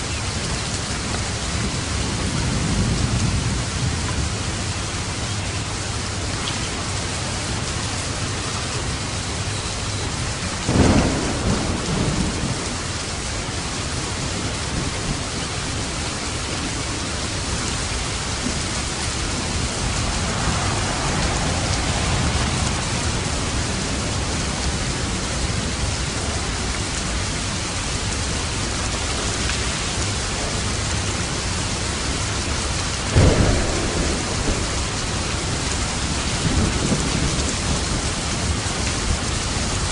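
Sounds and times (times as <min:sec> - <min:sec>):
heavy rain: 0:00.0 - 0:39.9
soft roll of thunder: 0:01.1 - 0:28.6, 0:29.8 - 0:39.8
sharp thunder claps: 0:10.6 - 0:26.6, 0:31.8 - 0:39.7.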